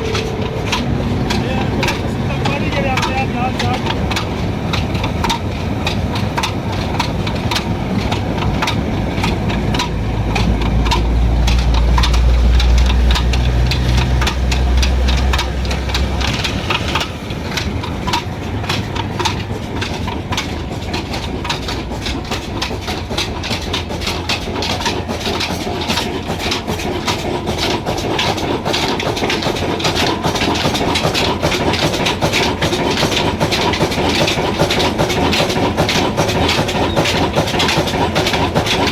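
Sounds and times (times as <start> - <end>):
deep low hum: 0.0 - 2.6
diesel engine rhythmic knocking: 0.0 - 38.9.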